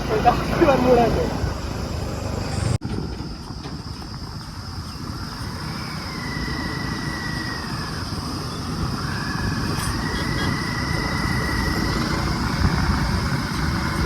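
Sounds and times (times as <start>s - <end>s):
heavy diesel engine rumbling: 0.0s - 14.0s
thin high whine: 5.1s - 14.0s.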